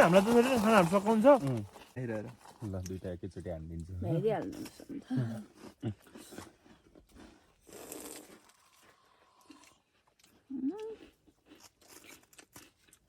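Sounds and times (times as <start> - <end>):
rustling: 0.0 - 2.9
food crunching and chewing: 0.0 - 13.0.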